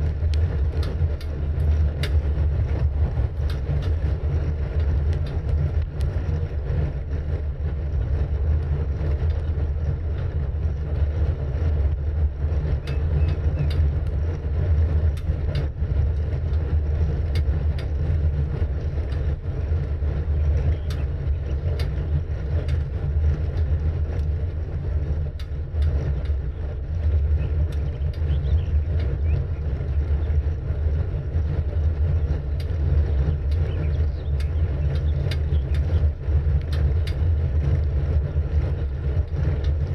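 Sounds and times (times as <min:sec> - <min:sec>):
bicycle road noise: 0:00.0 - 0:39.9
wind on microphone: 0:00.0 - 0:39.9
small clicks: 0:00.2 - 0:04.1, 0:20.7 - 0:22.0, 0:32.6 - 0:39.9.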